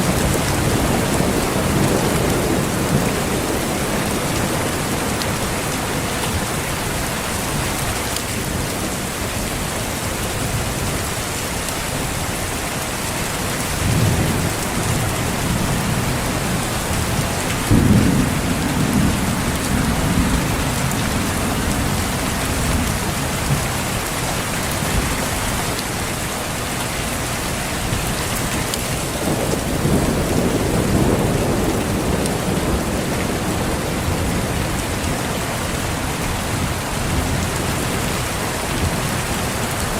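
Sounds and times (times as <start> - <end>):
heavy rainfall: 0.0 - 39.9
thunder rolling: 13.8 - 23.8, 28.9 - 35.1.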